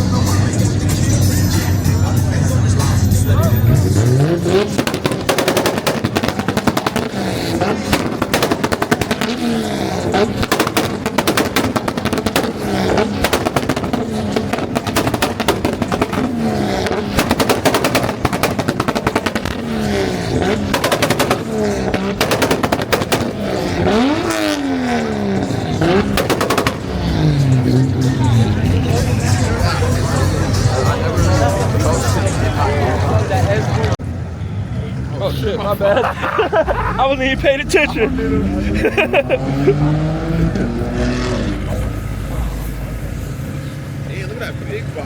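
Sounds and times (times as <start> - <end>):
car engine revving: 0.0 - 45.0
exhaust crackling pops: 4.0 - 32.0, 36.9 - 44.4.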